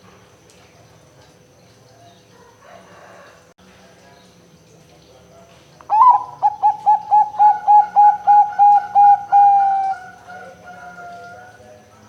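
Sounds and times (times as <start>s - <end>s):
dove cooing: 5.9s - 11.5s.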